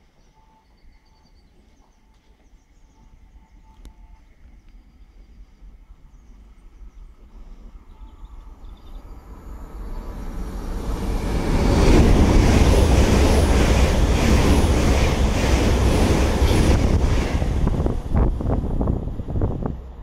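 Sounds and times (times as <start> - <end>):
train rushing past: 7.6 - 20.0.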